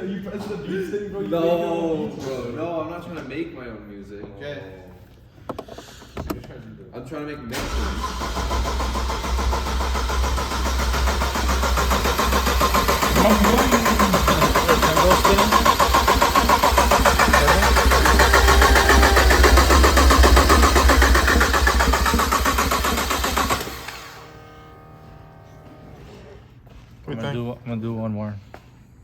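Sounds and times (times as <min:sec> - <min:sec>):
starter motor cranking engine: 0:07.6 - 0:24.4.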